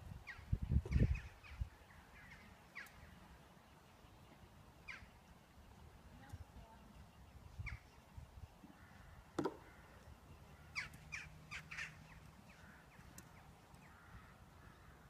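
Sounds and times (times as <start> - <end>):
wind rumble on microphone: 0.0 - 2.0
birds calling: 0.1 - 15.0.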